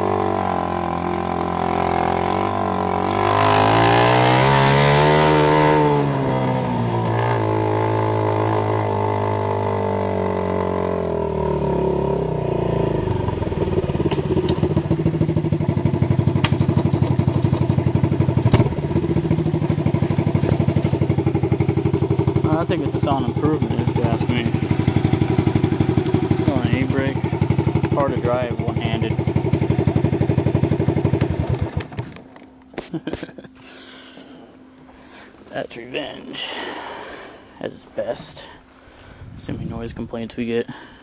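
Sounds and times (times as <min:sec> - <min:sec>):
engine running through open exhaust: 0:00.0 - 0:40.9.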